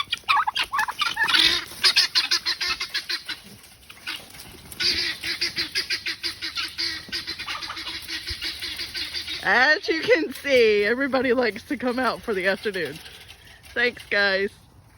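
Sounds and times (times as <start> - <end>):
poultry calling excitedly: 0.0 - 10.1.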